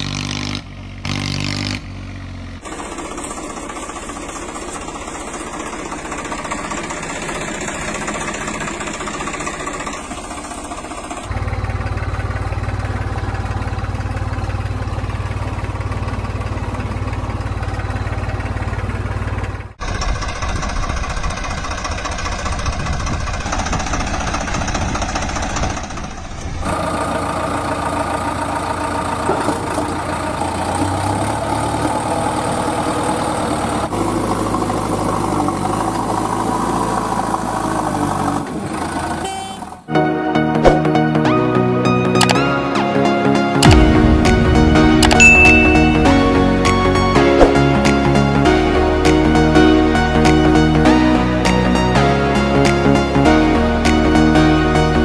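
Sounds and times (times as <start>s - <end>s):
tractor engine idling: 1.9s - 39.9s, 43.4s - 51.8s
strong low hum: 43.6s - 49.8s.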